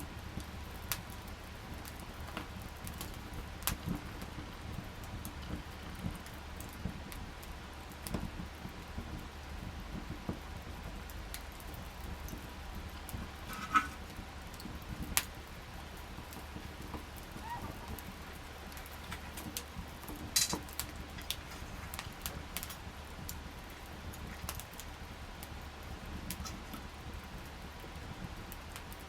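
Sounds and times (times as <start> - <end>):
campfire crackling: 0.0 - 29.0
fire popping: 0.0 - 29.0.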